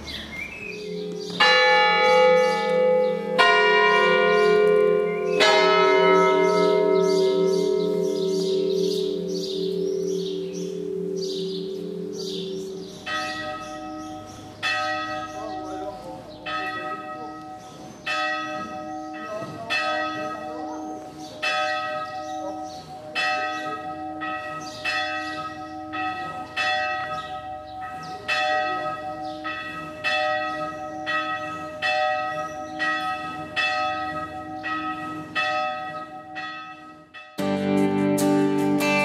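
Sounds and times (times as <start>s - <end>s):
church bell ringing: 0.0s - 37.6s.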